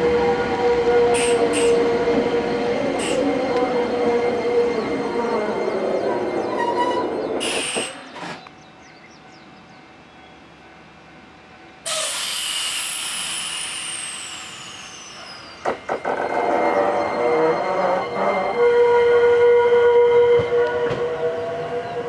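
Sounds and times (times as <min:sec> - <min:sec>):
train running noise: 0:00.0 - 0:22.0
compressed air hissing: 0:01.1 - 0:01.9, 0:03.0 - 0:03.3, 0:07.4 - 0:08.1, 0:11.9 - 0:15.6.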